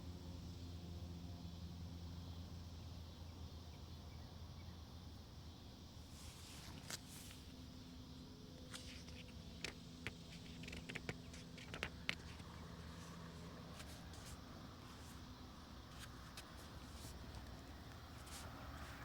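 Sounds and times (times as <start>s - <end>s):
faint hiss: 5.2s - 19.0s
light rustling: 8.6s - 19.0s.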